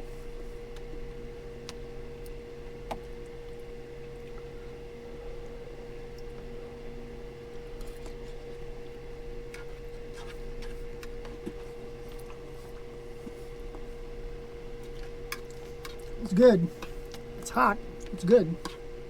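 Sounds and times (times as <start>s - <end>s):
steady low hum: 15.6s - 19.0s.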